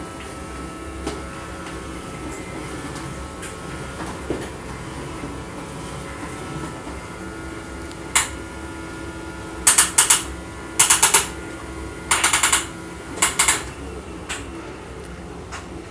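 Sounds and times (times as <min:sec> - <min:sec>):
vacuum cleaner humming: 0:00.0 - 0:15.9
rapid rattling clicks: 0:09.6 - 0:11.4, 0:12.1 - 0:13.7.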